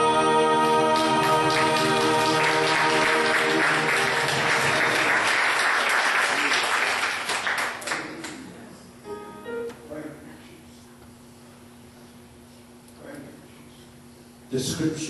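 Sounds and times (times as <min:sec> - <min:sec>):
held music chord: 0:00.0 - 0:05.4
congregation applauding: 0:00.7 - 0:08.5.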